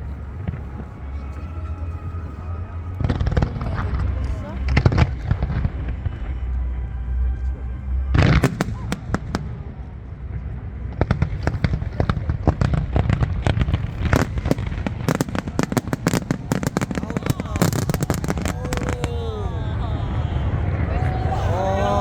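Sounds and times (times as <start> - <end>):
rapid crackling firework bangs: 11.1 - 19.1.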